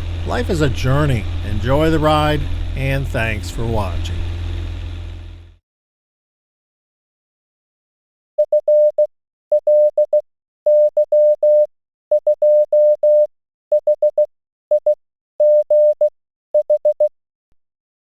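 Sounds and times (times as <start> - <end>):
morse code beeps: 8.4 - 17.1.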